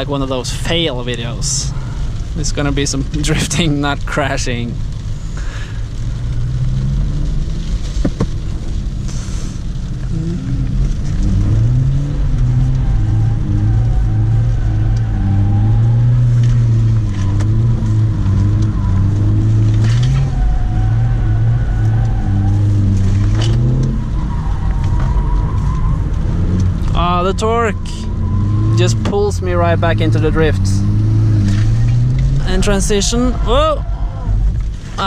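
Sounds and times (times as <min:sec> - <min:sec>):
diesel car engine revving: 0:00.0 - 0:35.0.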